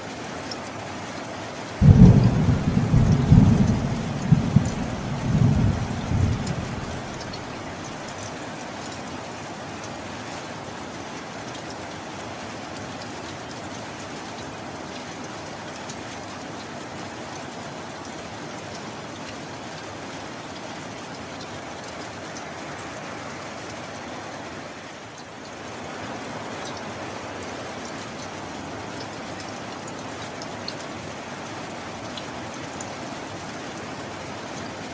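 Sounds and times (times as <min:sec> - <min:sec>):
steady rain hissing: 0:00.0 - 0:34.9
sharp raindrop ticks: 0:00.4 - 0:24.0.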